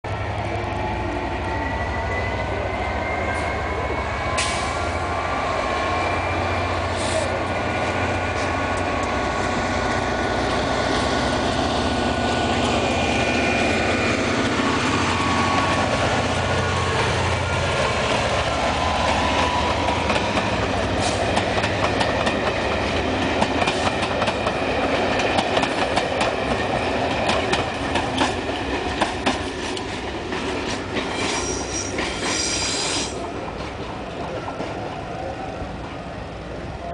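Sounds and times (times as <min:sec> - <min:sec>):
diesel locomotive engines under load: 0:00.1 - 0:36.9
train wheels clicking over rail joints: 0:19.0 - 0:35.2
wheel squeal: 0:31.1 - 0:33.2.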